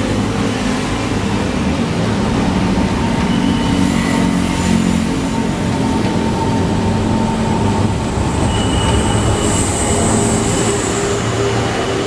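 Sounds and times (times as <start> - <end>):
train wheels rumbling on rails: 0.0 - 12.0
wheels squealing on curve: 7.2 - 12.0.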